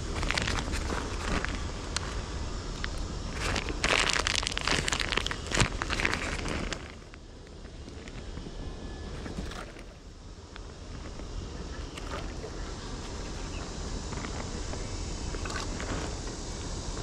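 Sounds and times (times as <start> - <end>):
rustling and crinkling handling noise: 0.0 - 10.0.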